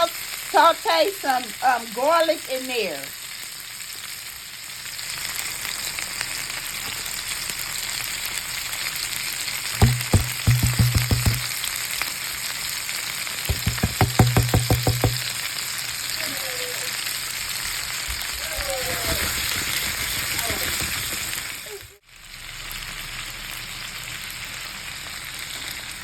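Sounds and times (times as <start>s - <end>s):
meat sizzling in a pan: 0.0s - 26.0s
rapid taps: 9.8s - 11.5s, 13.5s - 15.4s.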